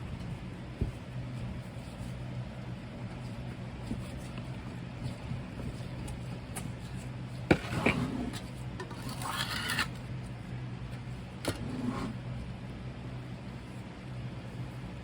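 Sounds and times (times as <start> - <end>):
steady low hum: 0.0 - 15.0
short scrape: 8.9 - 10.0.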